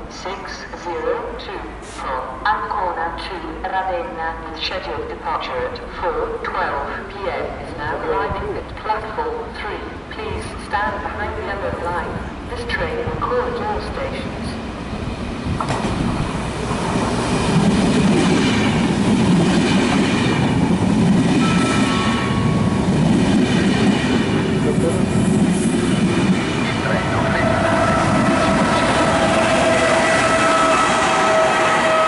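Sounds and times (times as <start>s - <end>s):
train wheels rumbling on rail: 11.7s - 32.0s.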